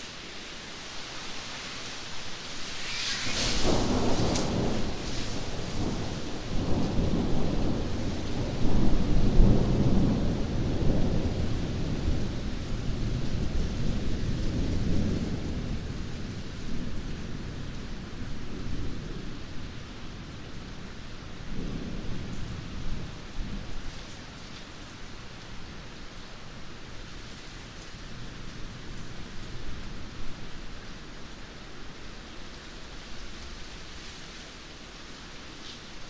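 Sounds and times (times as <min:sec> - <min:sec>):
steady rain: 0:00.0 - 0:36.0
thunder rumbling: 0:03.1 - 0:19.5.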